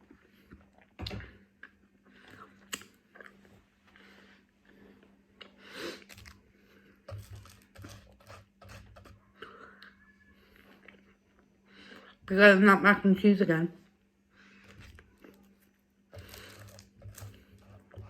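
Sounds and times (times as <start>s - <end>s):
person chewing and crunching: 0.0s - 3.6s, 14.5s - 18.0s.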